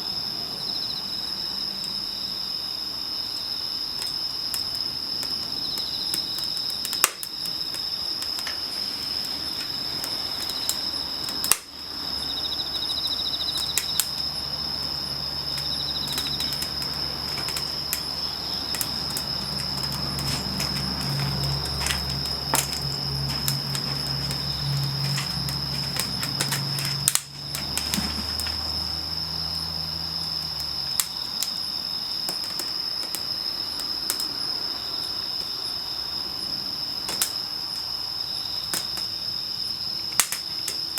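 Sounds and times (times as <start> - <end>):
insects chirring: 0.0 - 40.9
campfire crackling and popping: 3.8 - 34.5, 37.1 - 37.5, 40.1 - 40.9.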